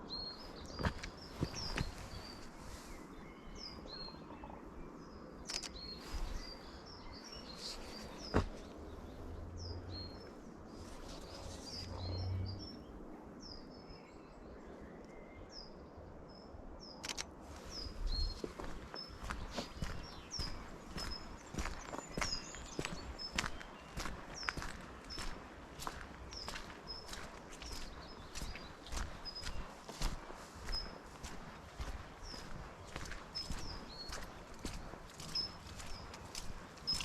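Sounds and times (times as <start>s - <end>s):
songbirds chirping: 0.0s - 37.0s
sharp clicks: 5.4s - 5.9s, 17.0s - 17.3s.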